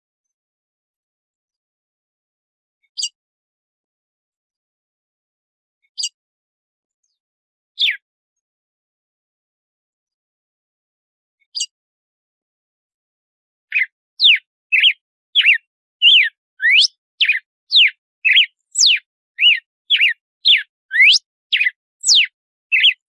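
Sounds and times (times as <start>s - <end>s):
bird singing whistled notes: 7.8s - 8.0s, 13.7s - 23.0s.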